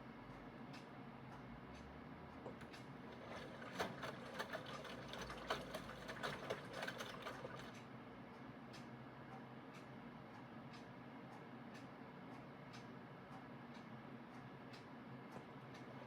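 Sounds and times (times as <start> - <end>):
washing machine hum: 1.7 - 8.3, 15.0 - 16.0.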